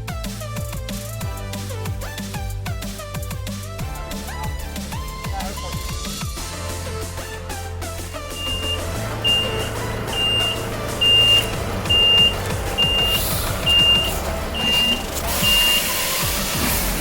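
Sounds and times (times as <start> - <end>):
truck engine running: 6.5 - 17.0
truck backup alarm beeping: 7.9 - 17.0.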